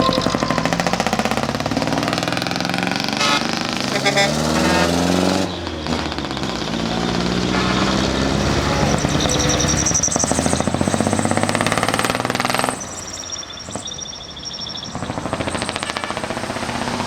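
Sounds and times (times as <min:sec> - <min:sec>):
thin high whistling tones: 0:00.0 - 0:02.6
vehicle engines driving past: 0:00.0 - 0:13.8.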